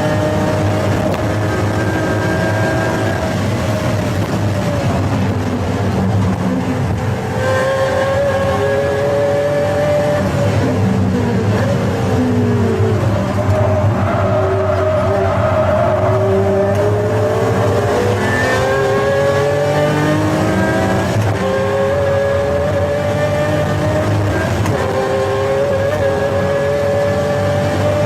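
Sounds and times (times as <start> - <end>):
car engine accelerating hard: 0.0 - 28.0.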